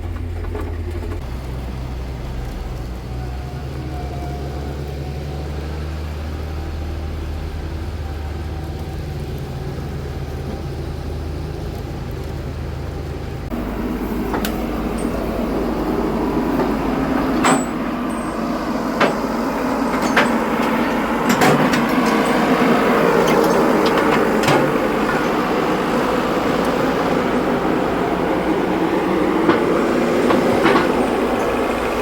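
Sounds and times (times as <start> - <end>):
vehicle engine running: 0.0 - 32.0
sharp knocks or rattles: 16.5 - 25.7.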